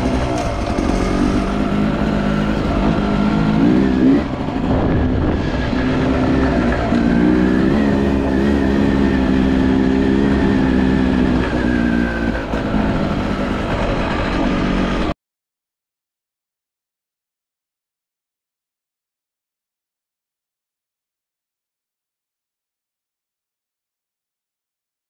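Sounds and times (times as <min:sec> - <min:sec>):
two-stroke motorcycle engine revving: 0:00.0 - 0:15.2.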